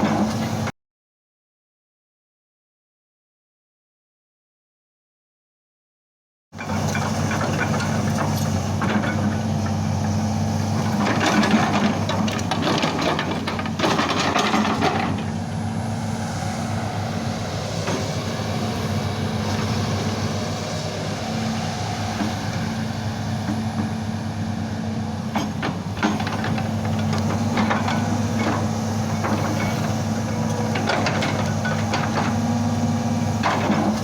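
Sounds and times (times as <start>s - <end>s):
excavator diesel engine running: 6.6s - 34.0s
clattering hissy machine noise: 17.0s - 24.2s, 25.2s - 34.0s.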